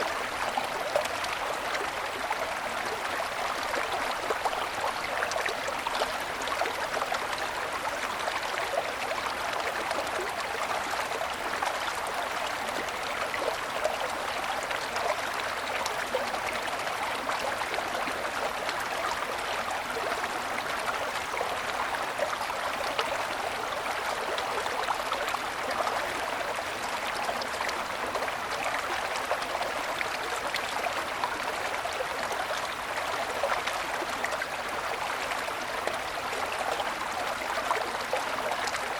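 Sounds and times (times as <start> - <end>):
stream babbling over stones: 0.0 - 38.9.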